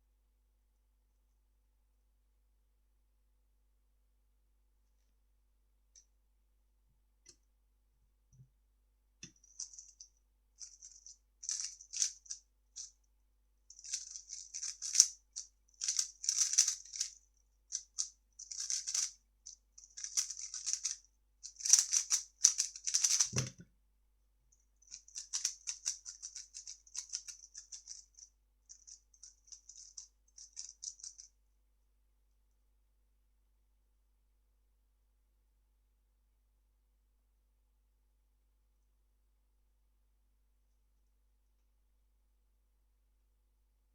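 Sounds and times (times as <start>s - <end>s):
puzzle cube clicking turns: 13.8s - 15.1s, 15.8s - 17.1s, 17.7s - 19.1s, 19.9s - 23.6s, 24.9s - 28.0s.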